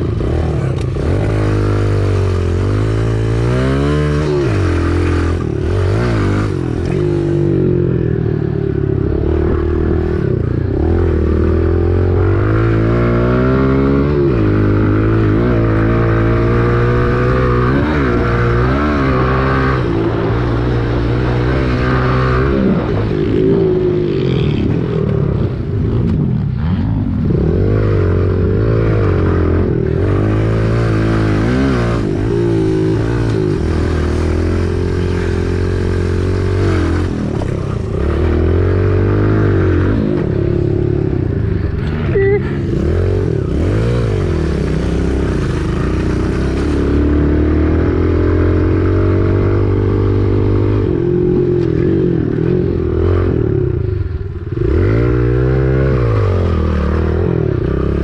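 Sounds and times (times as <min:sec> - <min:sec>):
small motorcycle engine revving: 0:00.0 - 0:58.0.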